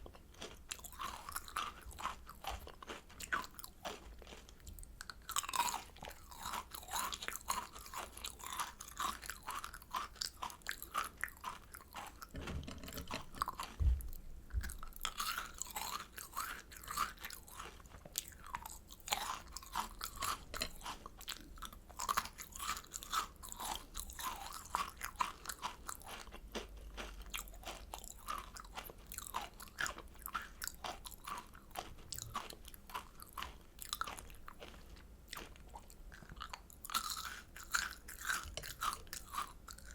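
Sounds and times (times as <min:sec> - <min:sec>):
crunching and chewing candy: 0:00.0 - 0:39.9
dull low knocks: 0:12.3 - 0:15.0.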